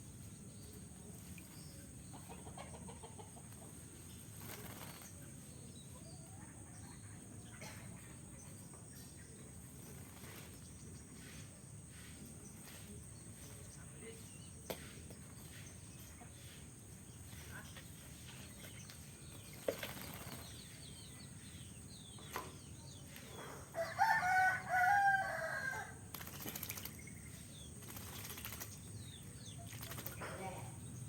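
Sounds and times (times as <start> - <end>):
wings fluttering: 3.4 - 5.4, 9.6 - 11.5, 17.2 - 20.8, 25.9 - 30.6
bird splashing in water: 17.3 - 20.8, 26.0 - 30.5.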